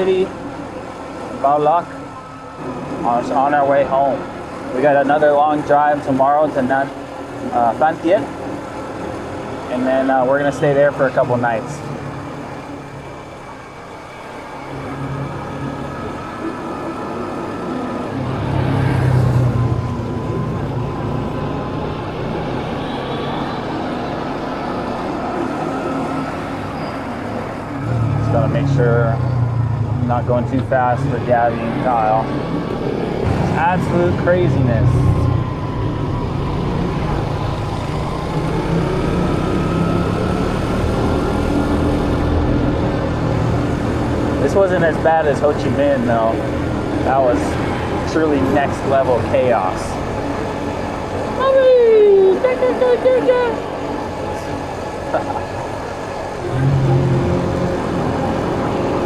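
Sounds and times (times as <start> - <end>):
city traffic: 0.0 - 59.0
road noise: 0.0 - 59.0.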